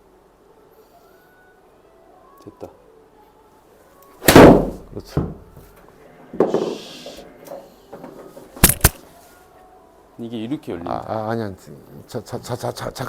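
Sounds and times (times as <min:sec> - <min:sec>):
sharp click: 0:08.6 - 0:09.0.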